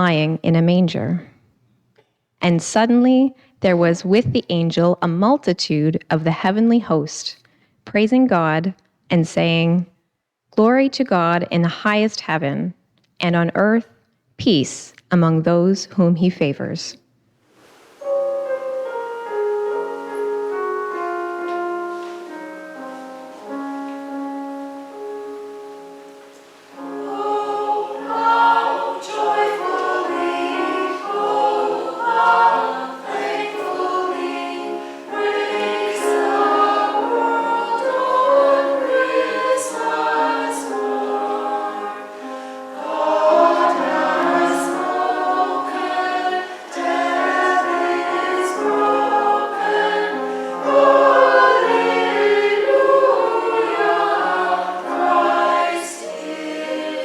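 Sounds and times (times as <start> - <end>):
church choir singing: 18.0 - 57.0
keyboard chords: 18.0 - 57.0.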